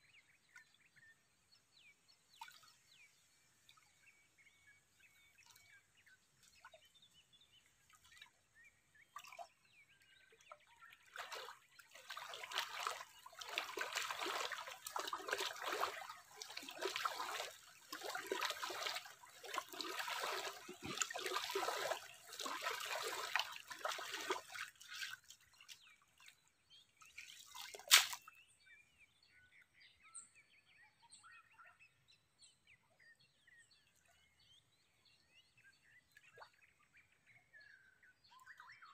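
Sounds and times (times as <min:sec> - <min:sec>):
birds chirping faintly: 0:00.0 - 0:38.9
water sloshing and splashing: 0:05.0 - 0:09.8, 0:10.4 - 0:28.4.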